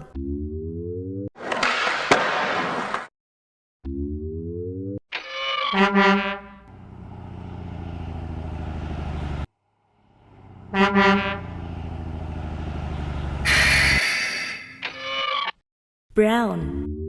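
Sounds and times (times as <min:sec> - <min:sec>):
truck engine pulsing rumble: 0:06.6 - 0:14.0
short horn honk: 0:10.7 - 0:11.6, 0:13.4 - 0:14.5.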